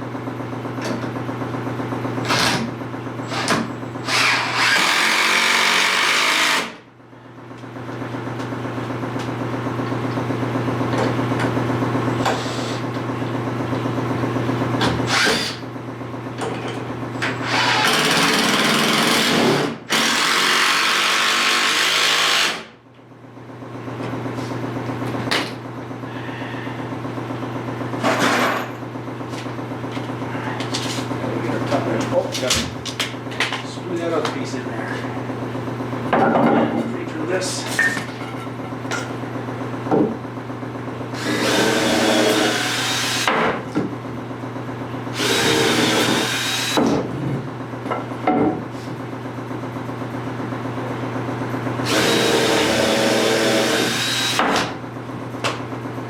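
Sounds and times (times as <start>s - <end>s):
power drill running: 2.2s - 2.7s, 3.3s - 6.8s, 15.1s - 15.7s, 17.4s - 22.7s, 41.2s - 43.3s, 45.1s - 46.8s, 51.8s - 54.5s
drill grinding into material: 3.3s - 6.8s, 15.1s - 15.6s, 17.4s - 22.7s, 41.2s - 43.3s, 45.2s - 46.8s, 51.8s - 54.4s.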